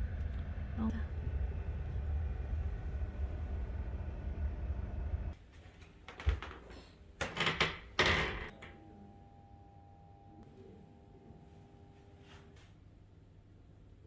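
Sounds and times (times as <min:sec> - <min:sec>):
steady low rumble: 0:00.0 - 0:05.4.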